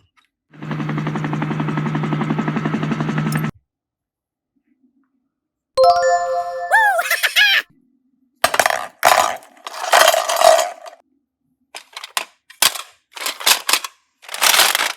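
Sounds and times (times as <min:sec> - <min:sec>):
bright chime-like ding: 0:05.8 - 0:07.0
fast rattle: 0:08.5 - 0:11.0, 0:11.8 - 0:14.9.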